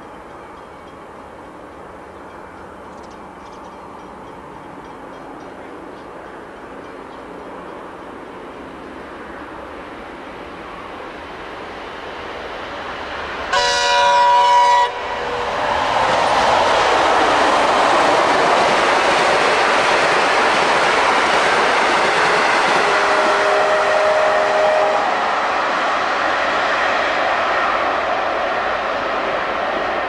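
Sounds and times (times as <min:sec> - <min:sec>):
train rumbling past: 0:00.0 - 0:30.0
locomotive horn chord: 0:13.5 - 0:15.5, 0:22.7 - 0:25.2.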